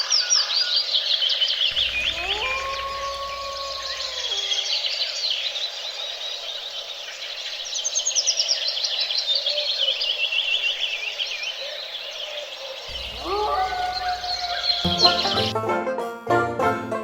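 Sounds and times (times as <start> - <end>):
small songbirds singing: 0.0 - 15.5.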